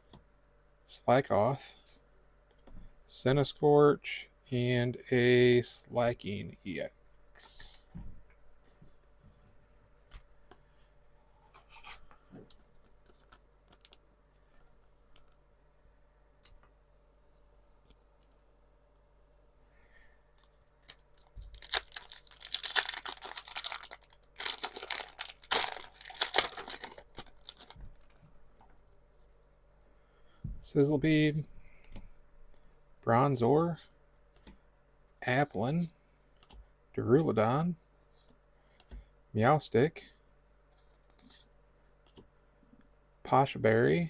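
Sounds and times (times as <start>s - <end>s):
wrapper ripping and crinkling: 20.8s - 28.2s.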